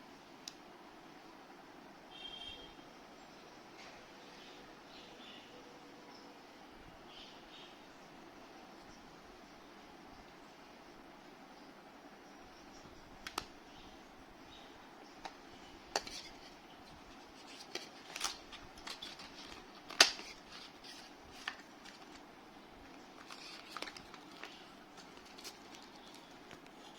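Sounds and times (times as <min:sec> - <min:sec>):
plastic packaging clicks and taps: 0:13.2 - 0:13.5, 0:15.2 - 0:22.2, 0:22.8 - 0:26.8.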